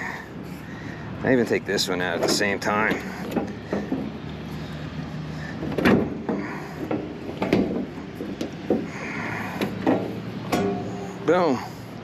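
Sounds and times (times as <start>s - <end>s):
metal panel clunks and scrapes: 2.0s - 4.2s, 5.5s - 11.4s.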